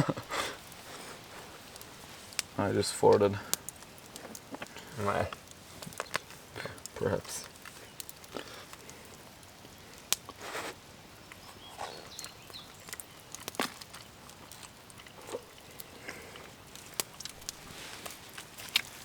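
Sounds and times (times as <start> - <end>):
campfire wood popping: 0.0 - 19.0
soft rustling and handling: 13.5 - 19.0.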